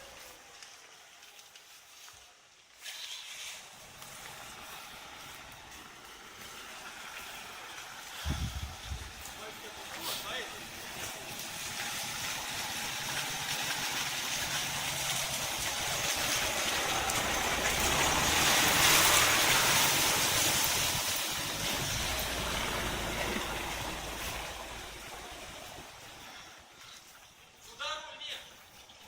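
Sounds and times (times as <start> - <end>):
car engine running: 16.0 - 26.3.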